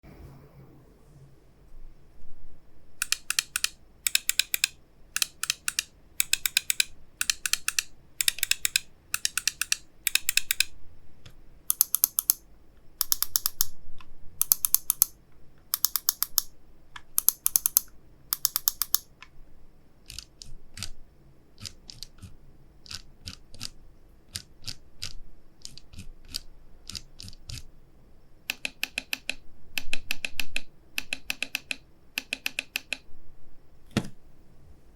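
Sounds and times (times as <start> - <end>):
mouse buttons clicking: 3.0 - 10.7, 11.7 - 12.4, 13.0 - 13.8, 14.4 - 19.3, 28.5 - 33.0.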